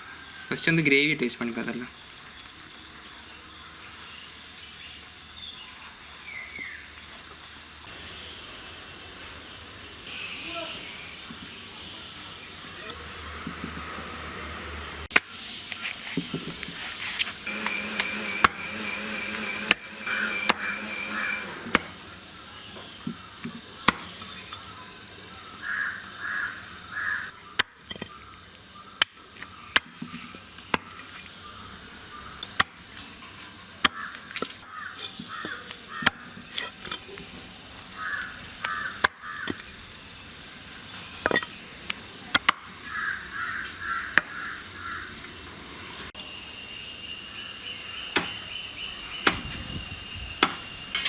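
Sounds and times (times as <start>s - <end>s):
crows cawing: 20.1s - 21.5s, 25.6s - 27.4s, 33.9s - 36.4s, 37.9s - 39.7s, 42.8s - 45.2s.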